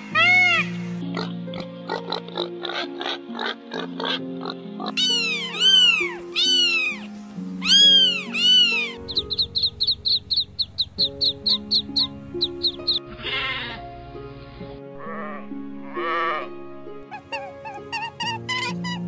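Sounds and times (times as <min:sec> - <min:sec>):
background music: 0:00.0 - 0:19.0
piglet squeals: 0:04.8 - 0:09.4, 0:11.1 - 0:13.8, 0:17.1 - 0:19.0.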